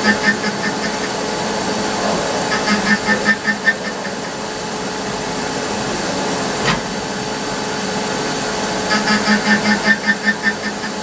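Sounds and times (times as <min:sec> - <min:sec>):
short machine pulses: 0:00.0 - 0:05.4
lathe running with high whine: 0:00.0 - 0:11.0.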